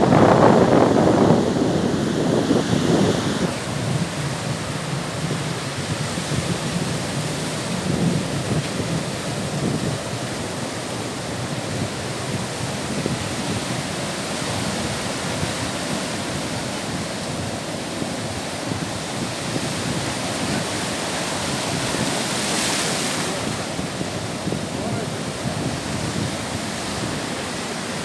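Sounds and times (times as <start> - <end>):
waves breaking on beach: 0.0 - 28.0.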